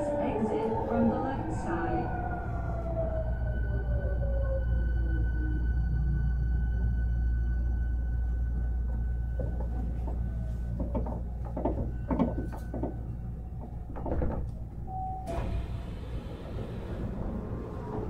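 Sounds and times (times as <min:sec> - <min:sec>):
train low hum: 0:00.0 - 0:18.0
knocks and clunks: 0:08.8 - 0:15.7.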